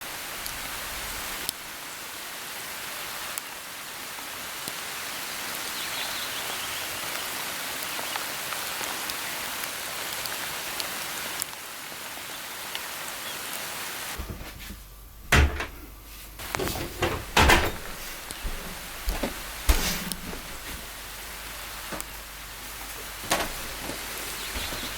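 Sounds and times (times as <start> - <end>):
steady hiss like rain: 0.0 - 24.9
sharp knocks and thuds: 14.2 - 24.9.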